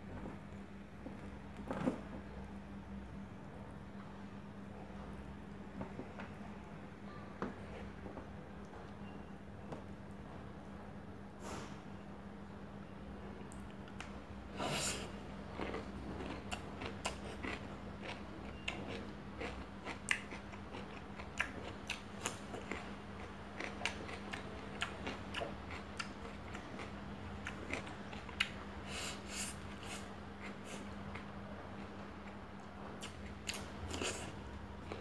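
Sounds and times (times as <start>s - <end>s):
steady low hum: 0.0s - 35.0s
chewing with wet mouth clicks: 15.5s - 28.6s, 29.9s - 35.0s.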